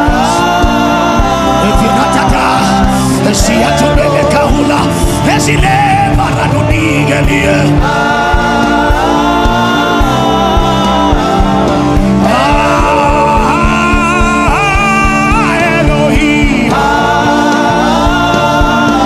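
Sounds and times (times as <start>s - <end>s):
band with steady drum beat: 0.0s - 19.0s.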